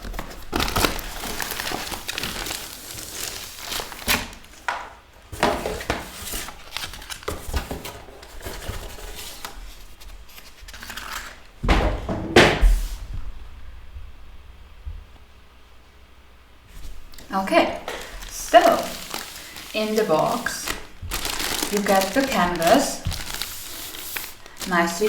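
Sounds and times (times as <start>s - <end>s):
packaging rustling: 0.0s - 12.0s, 16.7s - 25.0s
box knocks: 11.6s - 12.8s.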